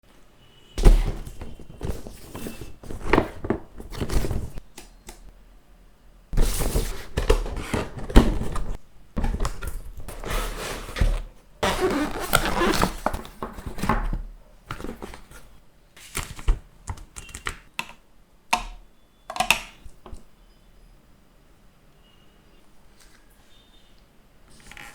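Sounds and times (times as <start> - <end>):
cardboard packaging rustling: 0.8 - 4.6, 6.4 - 15.5.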